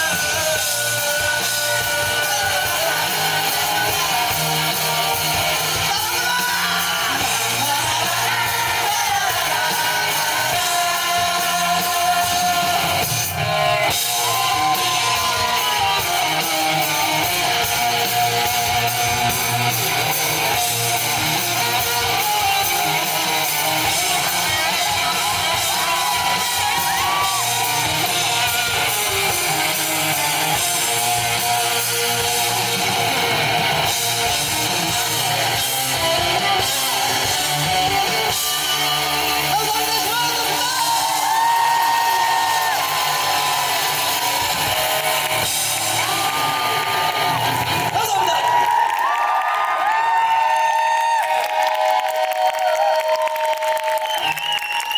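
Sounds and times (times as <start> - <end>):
person singing or shouting: 0.0 - 17.3, 23.8 - 33.3, 34.8 - 44.0
electric guitar lead bending: 0.0 - 48.0
live rock band playing: 0.0 - 54.9.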